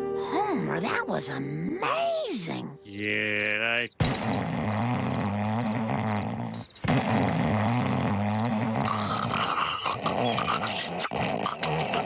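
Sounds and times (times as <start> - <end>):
cartoon man snoring: 3.5 - 12.0.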